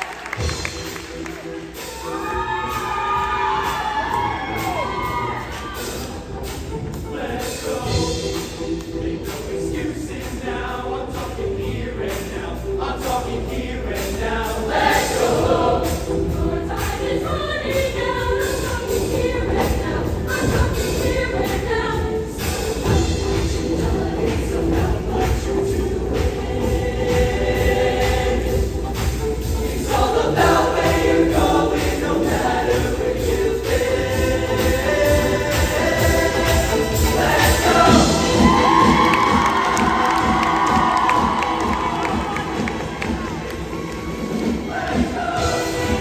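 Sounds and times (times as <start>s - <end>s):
choir singing: 0.0s - 46.0s
loud instrumental backing: 0.0s - 46.0s
music with steady beat: 0.0s - 46.0s.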